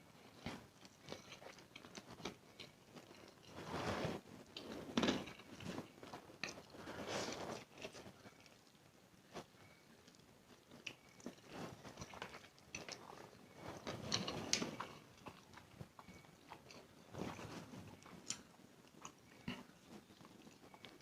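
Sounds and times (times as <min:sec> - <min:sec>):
person chewing noodles: 0:00.2 - 0:03.7, 0:09.5 - 0:21.0.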